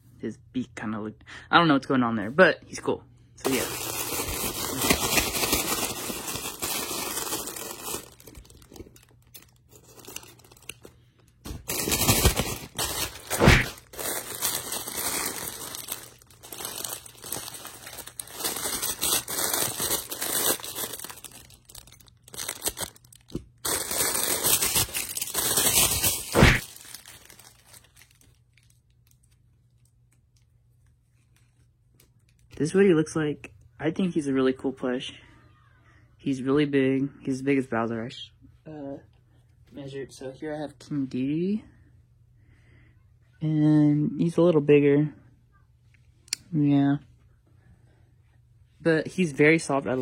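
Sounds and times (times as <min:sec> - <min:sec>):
plastic bag crinkling and tearing: 0:03.4 - 0:30.4.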